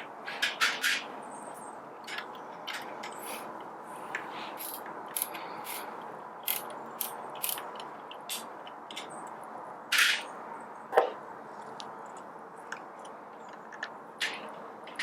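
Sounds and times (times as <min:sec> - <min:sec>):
screwdriver clicking and scraping: 0:04.1 - 0:08.5.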